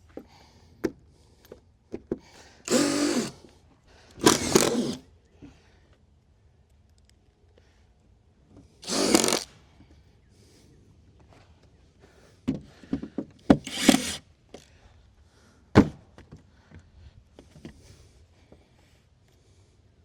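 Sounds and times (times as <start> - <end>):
wood scraping: 4.2 - 5.0, 8.8 - 9.5, 13.6 - 14.2.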